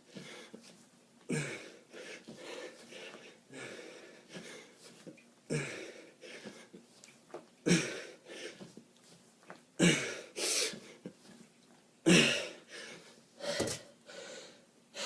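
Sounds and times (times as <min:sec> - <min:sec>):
man wheezy breathing: 0:01.3 - 0:04.8, 0:05.5 - 0:06.8, 0:07.6 - 0:08.7, 0:12.0 - 0:15.0.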